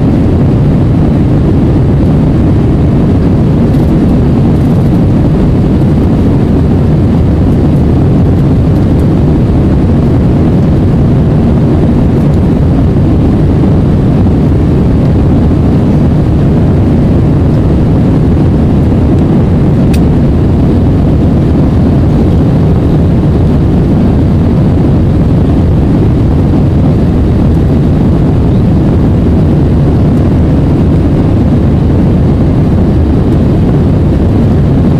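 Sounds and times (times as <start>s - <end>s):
jet engine and airflow roar: 0.0s - 34.9s.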